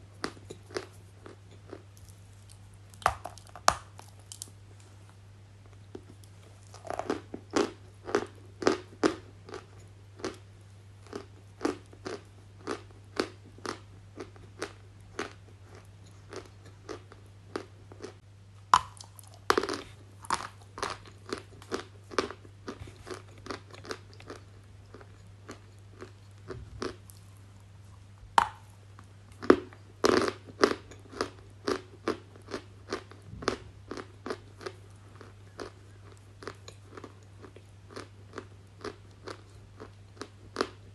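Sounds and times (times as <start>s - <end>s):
crunchy bites and chewing: 0.2s - 4.5s, 6.0s - 10.4s, 11.0s - 27.2s.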